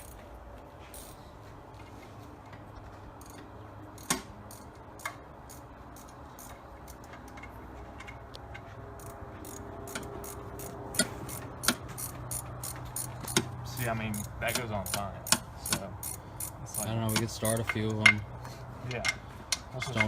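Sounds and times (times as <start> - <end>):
low steady hum: 0.0 - 20.0
metallic clicks of hand tools: 3.2 - 13.5, 14.1 - 18.2.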